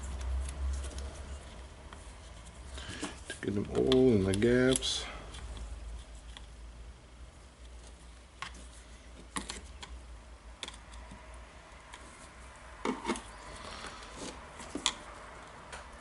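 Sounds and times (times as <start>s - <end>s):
clicks and taps of plastic parts: 3.0s - 5.7s.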